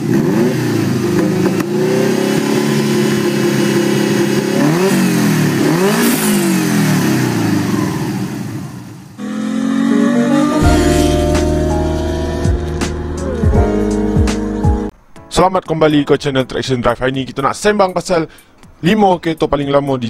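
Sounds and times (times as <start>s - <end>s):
car engine revving: 0.0s - 14.9s
music: 9.9s - 20.0s.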